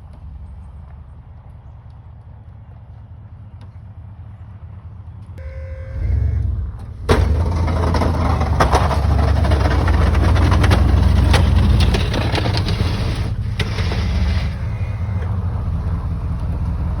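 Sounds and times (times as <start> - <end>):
truck engine running: 5.1 - 17.0
rough clattering and scraping: 6.8 - 15.4.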